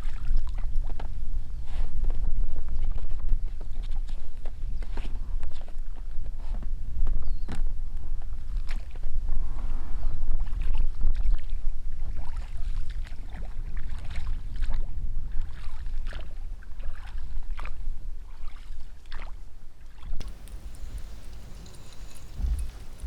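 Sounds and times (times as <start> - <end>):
oars splashing in water: 20.2 - 23.0.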